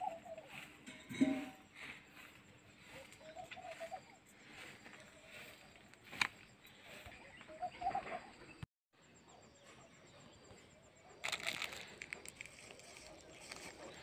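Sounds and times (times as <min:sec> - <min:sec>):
faint outdoor background: 0:00.0 - 0:14.0
short bird calls: 0:02.8 - 0:06.2.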